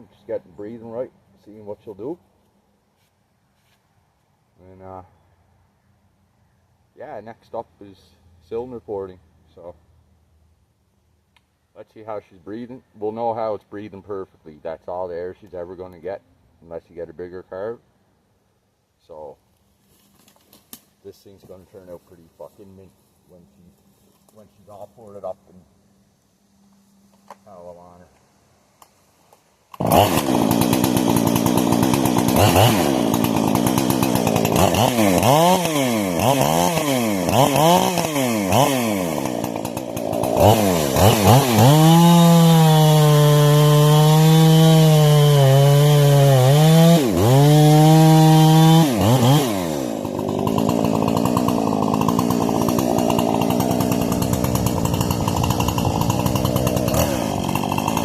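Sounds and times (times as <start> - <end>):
chainsaw revving: 29.8 - 58.0.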